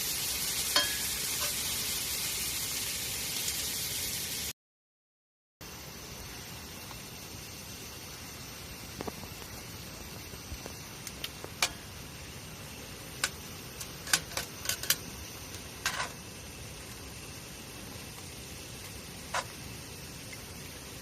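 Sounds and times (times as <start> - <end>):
steady low hiss of fire: 0.0 - 4.5, 5.6 - 21.0
campfire crackling and popping: 8.9 - 20.5.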